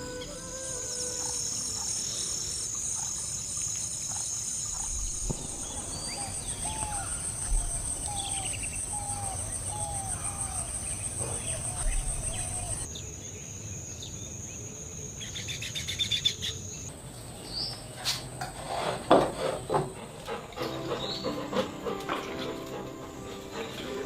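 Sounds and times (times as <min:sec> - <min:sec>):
insects chirring: 0:00.0 - 0:17.2.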